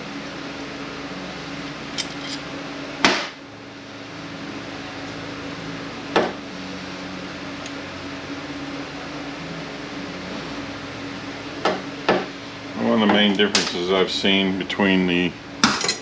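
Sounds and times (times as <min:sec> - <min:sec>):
steady hum: 0:00.0 - 0:16.0
metal tools clanking: 0:01.9 - 0:02.5, 0:15.6 - 0:16.0.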